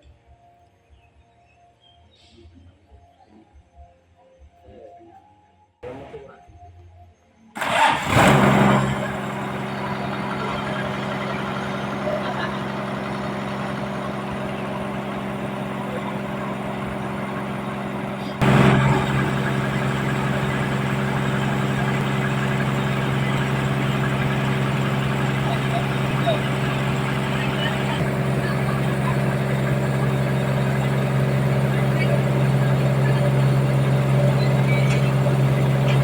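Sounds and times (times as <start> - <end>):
sawmill machinery humming: 7.6 - 36.0.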